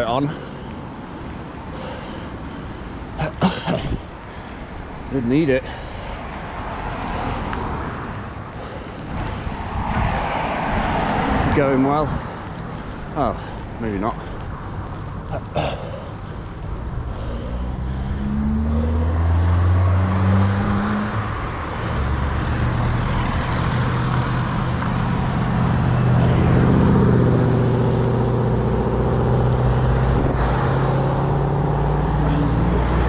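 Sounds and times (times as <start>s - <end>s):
motor vehicle engines on road: 0.0s - 33.0s
wind noise on microphone: 9.1s - 12.6s, 29.9s - 30.8s.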